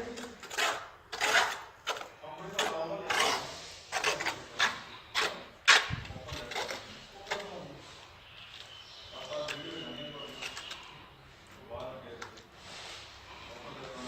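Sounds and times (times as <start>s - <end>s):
mason's tools scraping and tapping tile: 0.0s - 7.6s.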